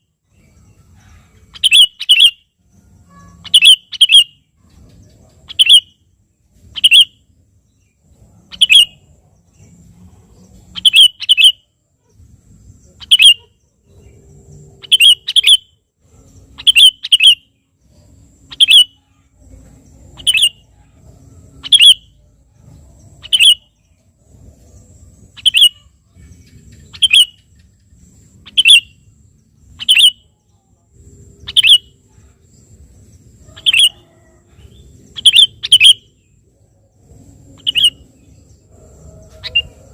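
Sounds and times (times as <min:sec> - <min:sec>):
bulbul calling: 0:01.5 - 0:06.0, 0:06.7 - 0:07.2, 0:08.5 - 0:09.7, 0:10.6 - 0:11.7, 0:12.9 - 0:17.6, 0:18.4 - 0:19.0, 0:20.0 - 0:20.8, 0:21.6 - 0:24.0, 0:25.2 - 0:29.1, 0:29.7 - 0:30.4, 0:31.4 - 0:32.1, 0:33.4 - 0:36.3, 0:37.4 - 0:39.9.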